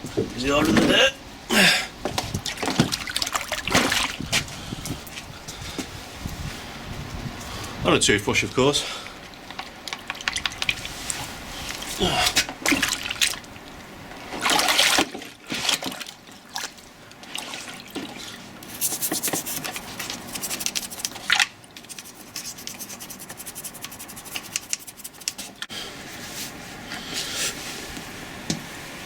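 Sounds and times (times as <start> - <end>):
water dripping and splashing: 2.2 - 5.2, 9.0 - 22.1
toothbrush scrubbing metal: 18.7 - 21.2, 21.8 - 25.5.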